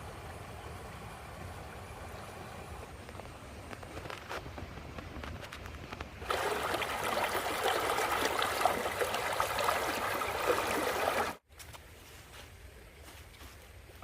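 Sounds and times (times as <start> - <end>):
faint patter like rain: 0.0 - 14.0
running water gurgling and splashing: 6.2 - 11.4.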